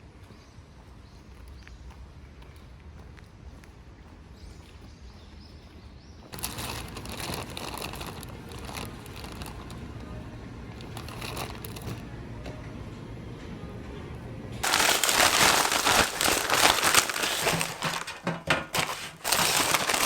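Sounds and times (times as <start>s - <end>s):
crinkling handling noise: 6.3s - 12.1s, 14.6s - 20.0s.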